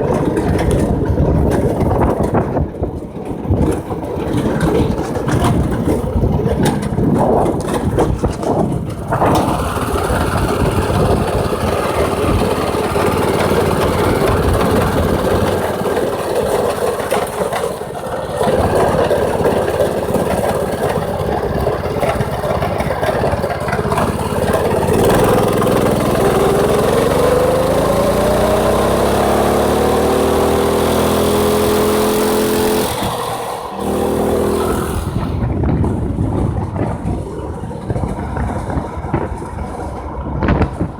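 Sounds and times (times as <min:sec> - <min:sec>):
wind rush: 0:00.0 - 0:16.8, 0:32.3 - 0:40.9
go-kart engine running: 0:00.0 - 0:40.9.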